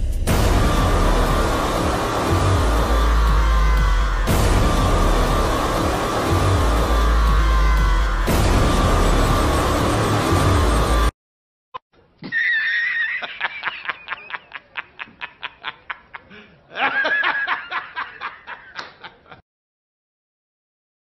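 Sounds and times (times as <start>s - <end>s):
person laughing: 12.2s - 19.4s.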